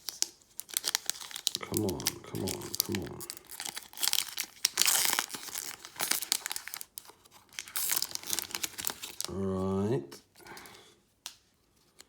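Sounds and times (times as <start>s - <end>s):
foil pack tearing open: 0.0s - 9.3s
wrapper crinkling: 0.0s - 9.5s.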